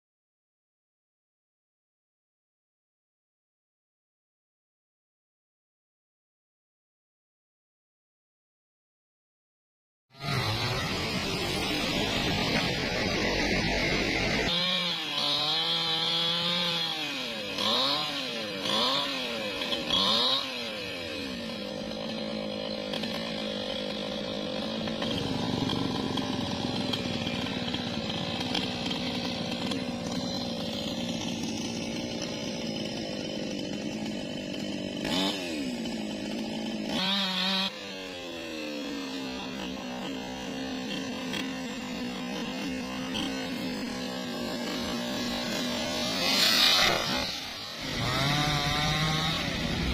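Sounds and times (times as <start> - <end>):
chainsaw revving: 10.1 - 49.9.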